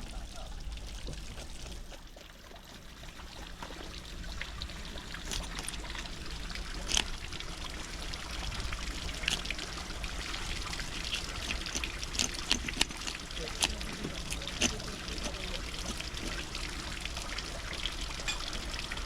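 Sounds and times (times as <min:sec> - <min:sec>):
water running from tap: 0:00.0 - 0:19.0
sharp clicks and knocks: 0:11.0 - 0:16.4.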